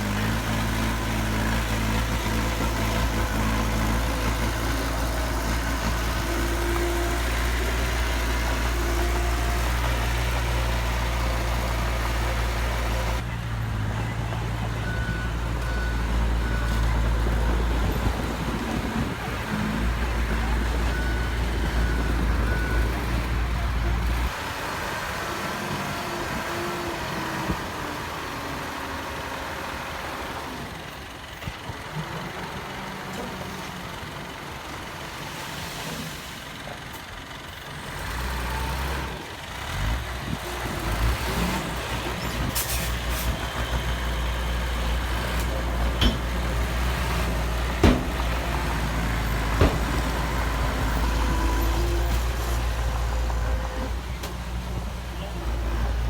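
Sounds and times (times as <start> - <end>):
heavy machinery diesel engines: 0.0 - 56.0.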